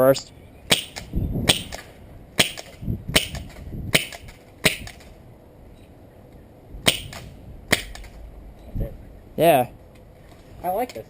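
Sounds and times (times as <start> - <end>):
airsoft shotgun cracks: 0.7 - 5.1, 6.8 - 8.2.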